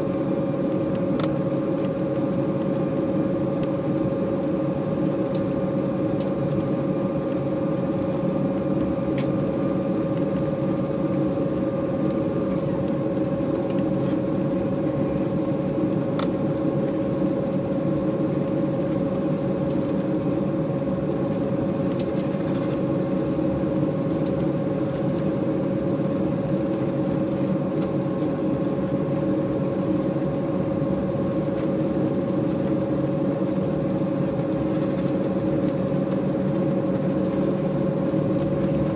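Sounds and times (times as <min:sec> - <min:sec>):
airplane cabin hum: 0:00.0 - 0:38.9.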